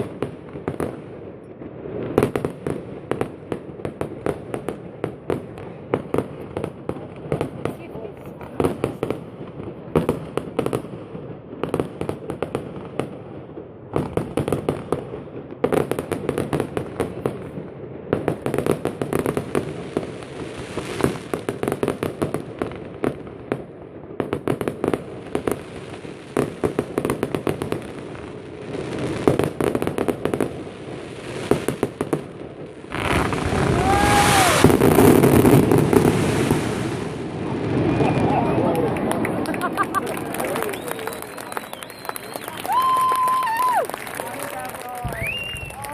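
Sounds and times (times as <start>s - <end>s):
fireworks bursting and crackling: 0.0s - 45.9s.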